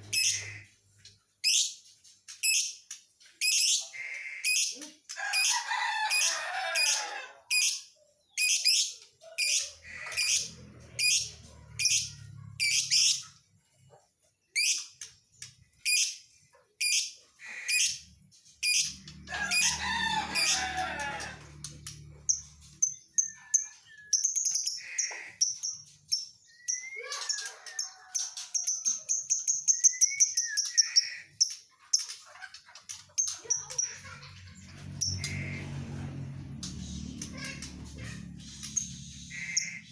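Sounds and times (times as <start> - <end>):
lovebird chirping and trilling: 1.4 - 4.9, 7.5 - 13.4, 14.5 - 15.1, 15.8 - 19.6, 22.3 - 34.3.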